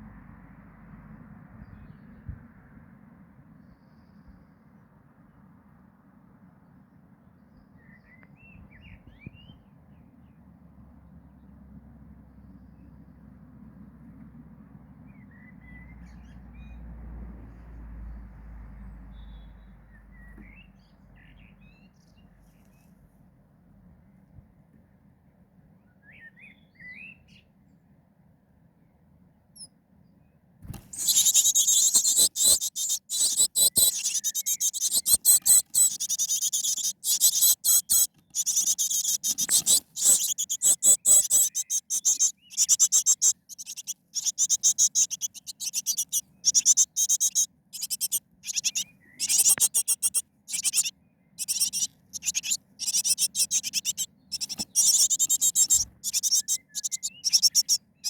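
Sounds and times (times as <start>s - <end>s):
nestling birds begging calls: 30.6s - 57.9s.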